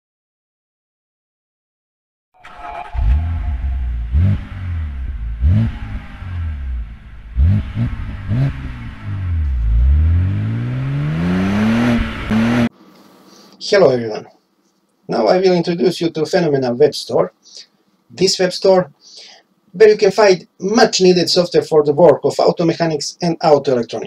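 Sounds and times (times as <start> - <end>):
car engine revving: 2.4 - 12.7.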